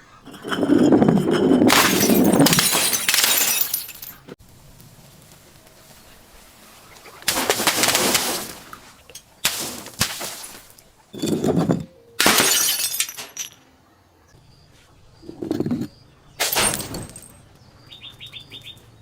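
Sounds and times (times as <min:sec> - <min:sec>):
glass bottles shattering: 0:00.2 - 0:04.3, 0:09.1 - 0:13.6, 0:16.4 - 0:17.4.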